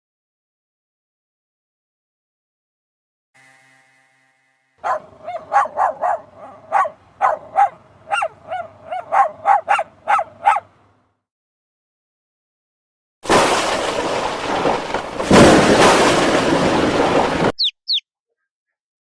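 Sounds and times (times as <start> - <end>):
dog barking high-pitched: 4.8 - 10.7.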